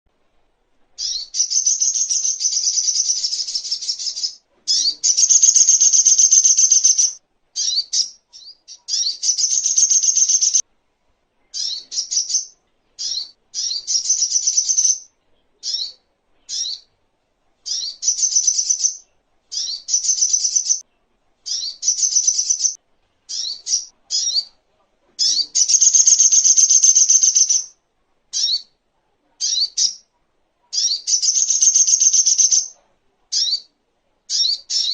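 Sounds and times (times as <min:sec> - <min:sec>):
bird calling with rapid chips: 0:01.0 - 0:10.6, 0:21.5 - 0:24.5, 0:25.2 - 0:27.7, 0:30.8 - 0:32.8.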